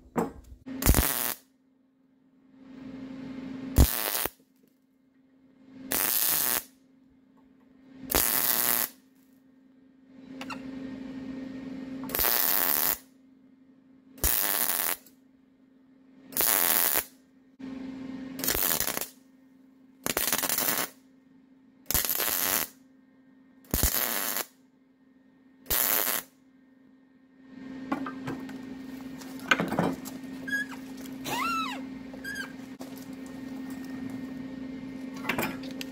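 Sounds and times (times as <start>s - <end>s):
welder humming: 0.7s - 1.4s, 3.7s - 4.4s, 5.9s - 6.7s, 8.1s - 9.0s, 12.0s - 13.1s, 14.2s - 15.1s, 16.4s - 19.2s, 20.0s - 21.0s, 21.9s - 22.8s, 23.7s - 24.5s, 25.7s - 26.3s, 27.5s - 35.9s
crackling welding arc bursts: 0.8s - 1.4s, 3.8s - 4.4s, 5.9s - 6.7s, 8.1s - 9.0s, 12.1s - 13.0s, 14.2s - 15.1s, 16.4s - 17.1s, 18.4s - 19.2s, 20.0s - 21.0s, 21.9s - 22.8s, 23.7s - 24.5s, 25.7s - 26.3s
handling noises with squeaks: 29.2s - 33.2s.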